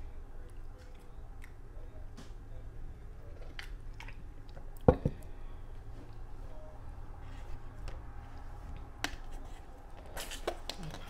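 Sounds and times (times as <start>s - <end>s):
soft chewing and mouth clicks: 0.4s - 2.3s, 3.0s - 4.9s, 7.3s - 11.0s
glass set down on table: 4.9s - 5.2s.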